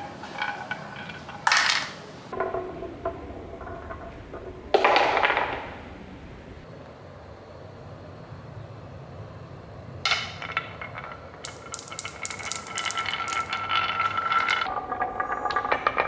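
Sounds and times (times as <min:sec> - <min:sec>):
toy pieces clattering on plastic track: 0:00.0 - 0:02.0, 0:10.1 - 0:16.0.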